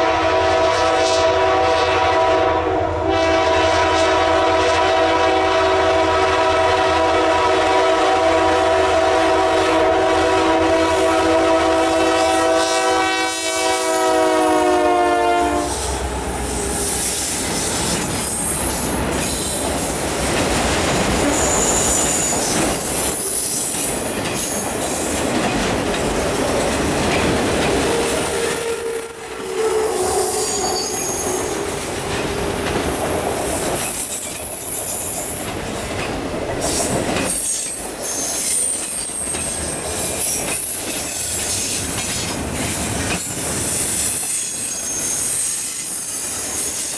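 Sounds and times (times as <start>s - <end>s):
locomotive air horn: 0.0s - 17.2s, 28.1s - 31.6s
train wheels clacking: 15.6s - 46.9s
high-pitched wheel squeal: 27.6s - 31.7s, 42.4s - 46.9s.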